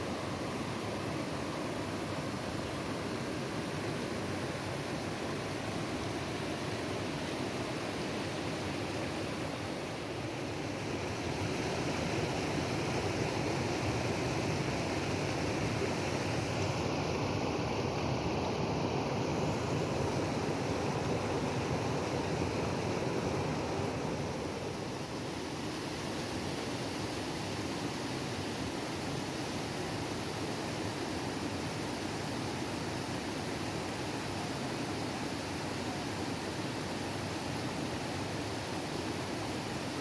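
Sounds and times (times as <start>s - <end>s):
waterfall rushing water: 19.2s - 40.0s.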